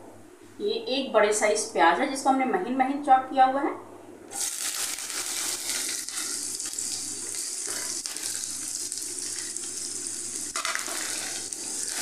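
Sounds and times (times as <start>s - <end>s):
onion sizzling in a frying pan: 4.3s - 12.0s.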